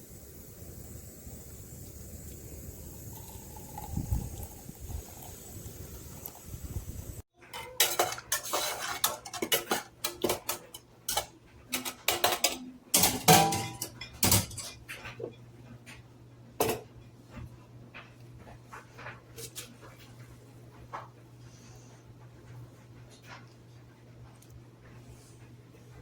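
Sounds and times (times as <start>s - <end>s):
kitchenware clinking: 7.4s - 15.4s, 16.6s - 16.9s.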